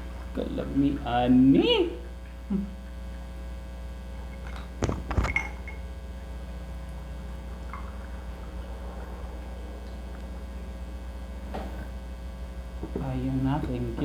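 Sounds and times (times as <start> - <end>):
electrical hum: 0.0 - 14.0
sharp clicks and knocks: 4.3 - 5.8.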